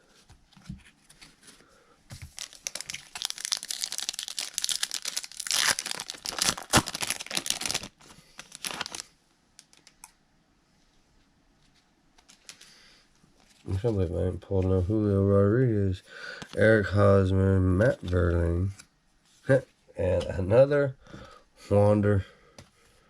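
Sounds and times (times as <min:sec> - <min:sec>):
foil wrapper tearing and crinkling: 0:02.3 - 0:09.8.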